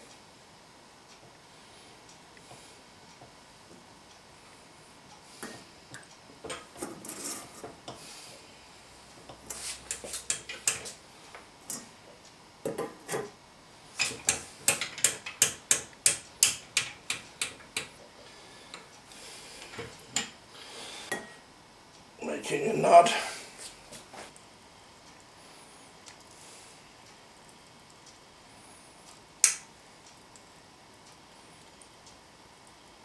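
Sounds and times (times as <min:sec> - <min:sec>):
sausage stuffer clicking: 0:14.0 - 0:18.1, 0:29.1 - 0:30.5.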